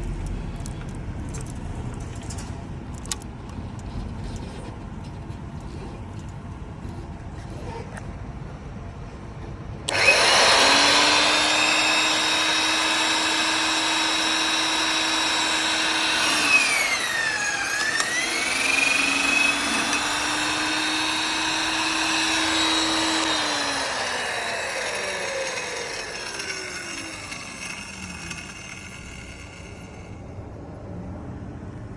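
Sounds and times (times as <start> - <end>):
mortiser motor whining: 9.9 - 30.2.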